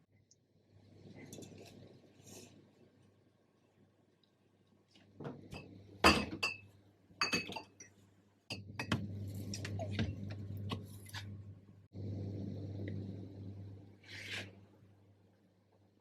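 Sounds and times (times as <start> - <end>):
low steady hum: 0.0 - 16.0
dishes and glassware clinking: 5.5 - 9.0.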